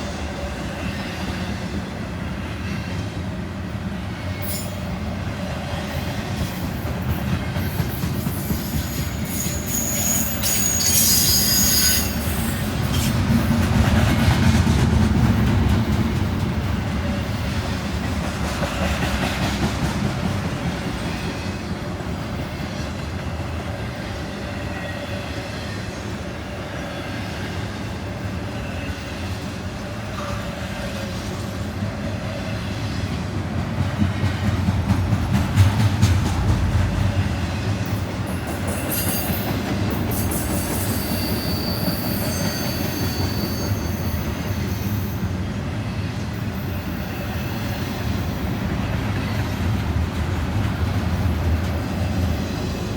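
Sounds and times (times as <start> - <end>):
train wheels rumbling on rail: 0.0 - 52.9
high wheel squeal: 8.3 - 13.1, 40.1 - 45.3.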